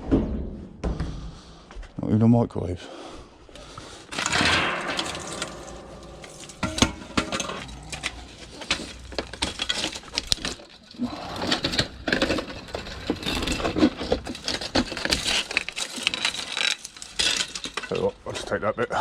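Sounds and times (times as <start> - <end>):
junk clattering and knocking: 4.1 - 18.2.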